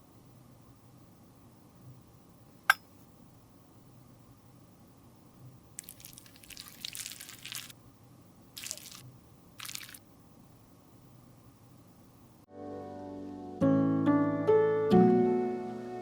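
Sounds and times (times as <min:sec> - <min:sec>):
crackling squishing product handling: 0:05.8 - 0:07.7, 0:08.6 - 0:09.0, 0:09.6 - 0:10.0.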